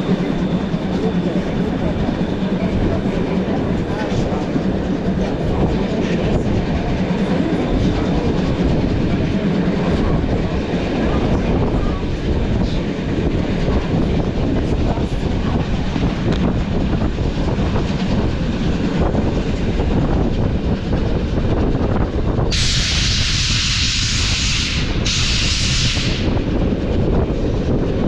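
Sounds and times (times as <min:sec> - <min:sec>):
train rumbling on rails: 0:00.0 - 0:28.0
loud steam hiss: 0:22.5 - 0:26.4.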